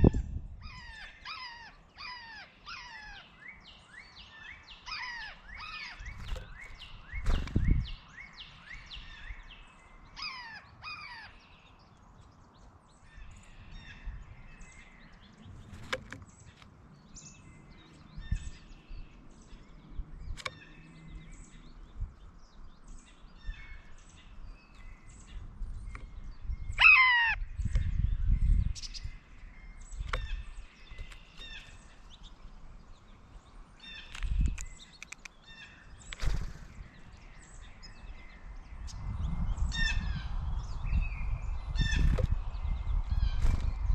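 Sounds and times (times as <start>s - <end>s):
birds chirping: 0.0s - 43.9s
harsh falling bird calls: 0.0s - 43.9s
low thumps and rumbles: 6.2s - 8.0s.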